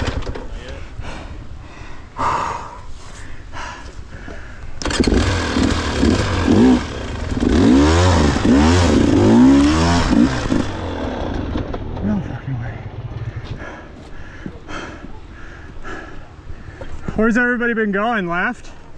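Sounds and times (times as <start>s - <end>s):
dirt bike engine revving: 4.8s - 13.2s.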